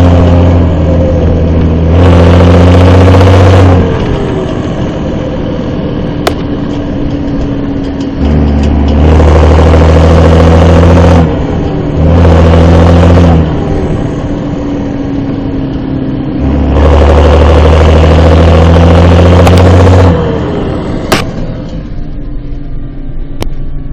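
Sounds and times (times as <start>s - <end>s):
tractor diesel engine revving: 0.0s - 23.9s.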